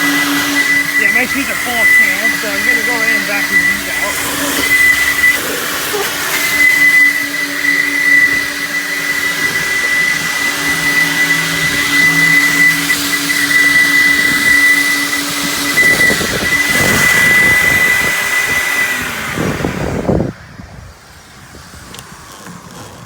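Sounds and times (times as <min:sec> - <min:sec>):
high whistle: 0:00.0 - 0:19.0
air rushing through vacuum hose: 0:00.0 - 0:23.0
vacuum motor hum: 0:00.0 - 0:23.0.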